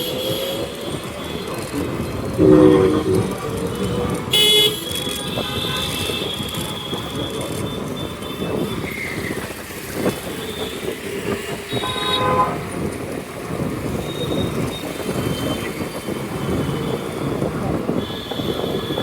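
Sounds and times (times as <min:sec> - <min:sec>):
road traffic noise: 0:00.0 - 0:19.0
vehicle horns honking: 0:02.3 - 0:07.2, 0:11.6 - 0:12.9.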